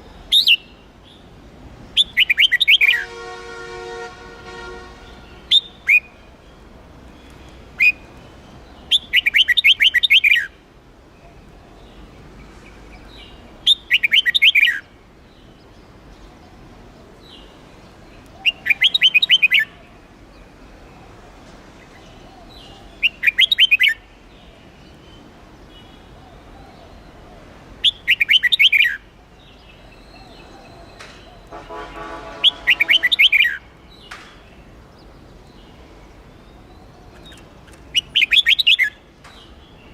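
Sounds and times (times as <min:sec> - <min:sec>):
bird chirps: 0:02.0 - 0:03.1, 0:05.0 - 0:06.3, 0:07.2 - 0:10.6, 0:12.6 - 0:15.8, 0:22.5 - 0:24.0, 0:27.8 - 0:39.9
bird warbling song: 0:02.0 - 0:03.2, 0:04.6 - 0:10.6, 0:11.2 - 0:20.5, 0:21.9 - 0:39.9.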